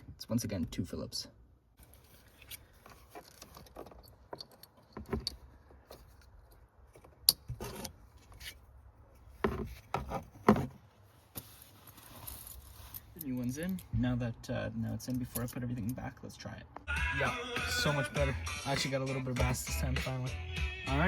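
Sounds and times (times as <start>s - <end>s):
clicks and rattles of screws: 2.3s - 8.0s.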